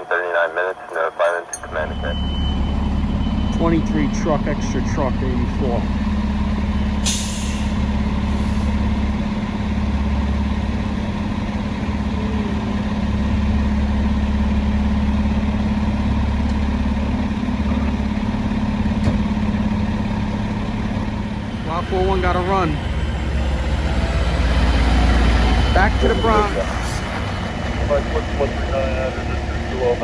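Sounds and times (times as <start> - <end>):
large vehicle engine idling: 1.6 - 30.0.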